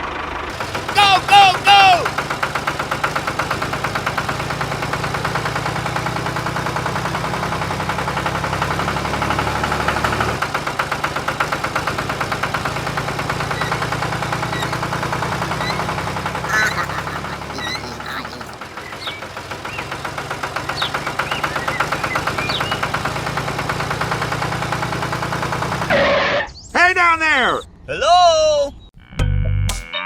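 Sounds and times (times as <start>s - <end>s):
tractor engine idling: 0.0s - 25.9s.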